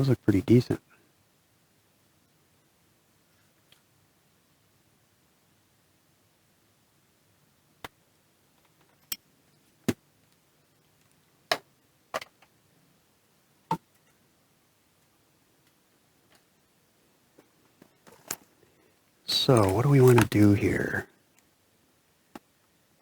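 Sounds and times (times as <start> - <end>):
small hard parts clicking: 19.3 - 20.6.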